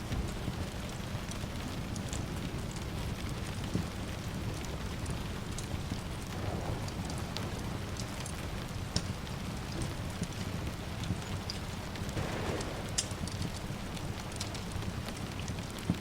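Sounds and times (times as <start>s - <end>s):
rain hiss: 0.0s - 16.0s
wood fire crackling: 0.0s - 16.0s
low rumble: 6.2s - 9.8s, 12.2s - 14.5s.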